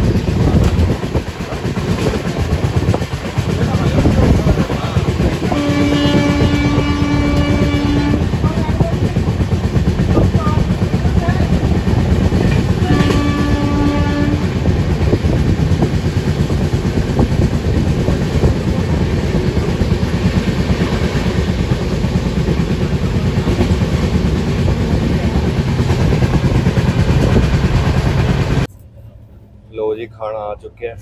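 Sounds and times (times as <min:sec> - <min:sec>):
train wheels rumbling on rails: 0:00.0 - 0:28.7
train horn blast: 0:05.4 - 0:08.9, 0:12.6 - 0:14.7.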